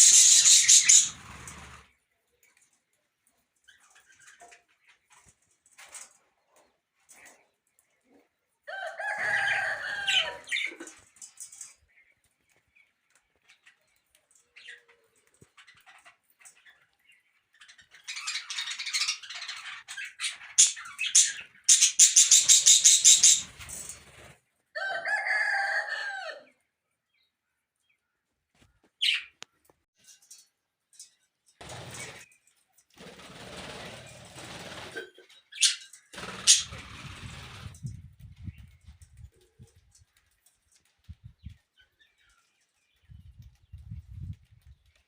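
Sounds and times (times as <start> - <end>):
birds squawking and chattering: 0.0 - 2.7, 3.3 - 6.1, 7.0 - 11.9, 12.5 - 26.0, 28.6 - 29.7, 33.0 - 39.0.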